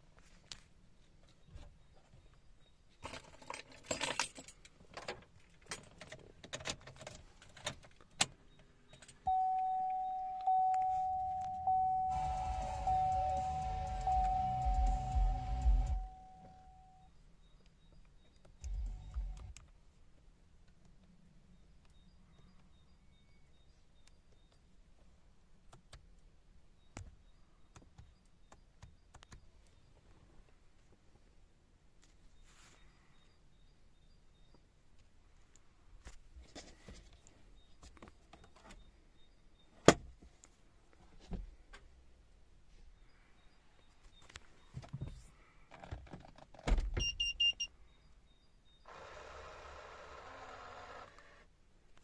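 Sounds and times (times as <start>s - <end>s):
keys jangling: 3.1s - 4.7s
vehicle warning chime: 9.2s - 17.1s.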